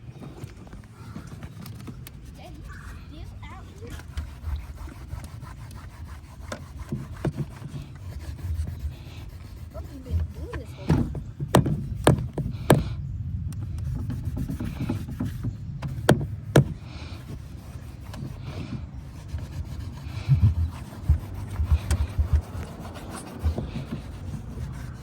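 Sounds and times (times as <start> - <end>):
scrubbing and wiping strokes: 0.3 - 13.0, 13.6 - 25.0
sharp knocks and clicks: 10.2 - 16.8, 20.2 - 24.8.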